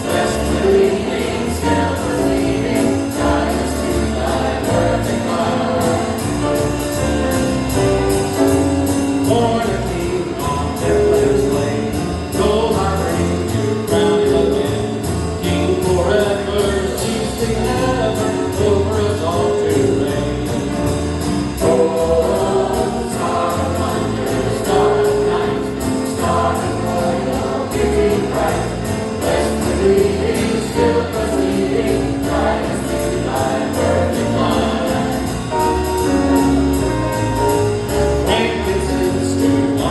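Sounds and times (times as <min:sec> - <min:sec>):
choir singing: 0:00.0 - 0:08.2, 0:21.5 - 0:39.9
jazz band accompaniment: 0:00.0 - 0:39.9.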